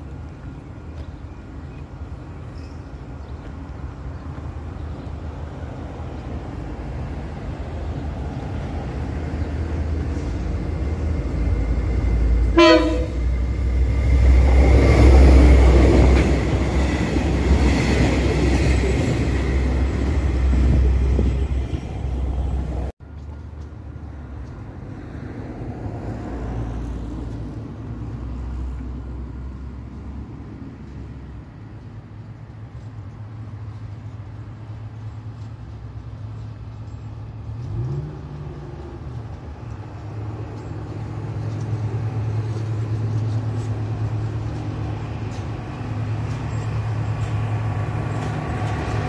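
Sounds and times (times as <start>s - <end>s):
freight train wheels on rails: 0.0s - 49.0s
low rumble of approaching train: 0.0s - 49.0s
train horn blast: 12.4s - 13.4s.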